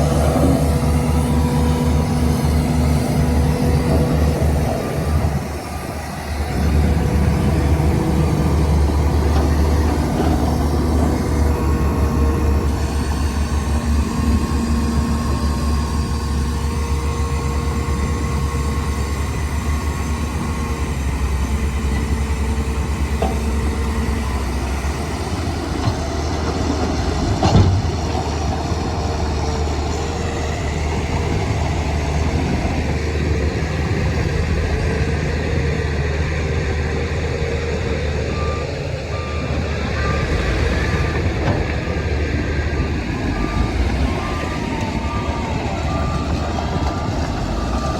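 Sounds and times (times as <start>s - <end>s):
heavy diesel engines running: 0.0s - 47.9s
reversing alarm beeping: 37.7s - 47.9s.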